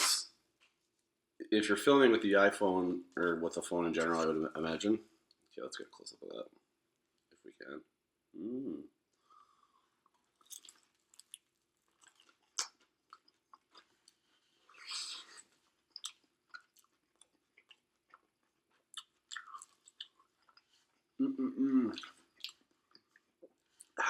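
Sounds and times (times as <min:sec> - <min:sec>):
person chewing food: 0:09.4 - 0:21.2, 0:21.9 - 0:24.0.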